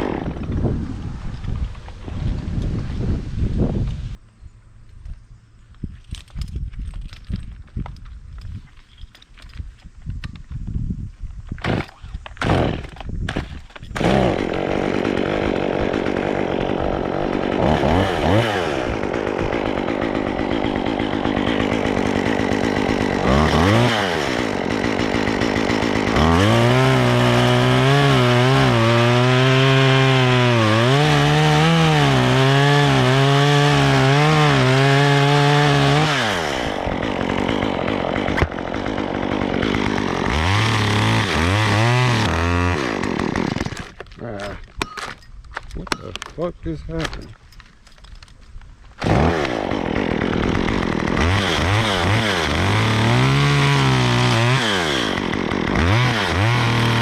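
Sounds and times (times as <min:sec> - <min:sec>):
chainsaw cutting wood: 0:00.0 - 0:01.7, 0:11.5 - 0:45.2, 0:48.2 - 0:57.0.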